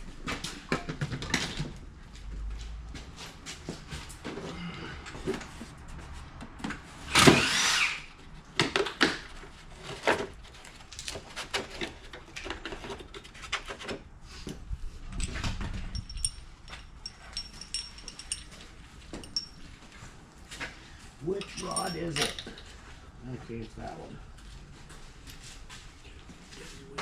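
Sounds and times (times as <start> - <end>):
tools and metal parts clinking: 15.1 - 19.8, 21.2 - 22.8.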